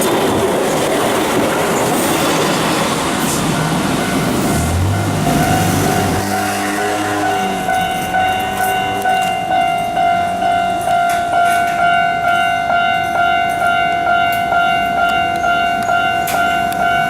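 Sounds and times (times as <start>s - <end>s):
level-crossing warning bell: 0.0s - 17.0s
train running: 0.0s - 17.0s.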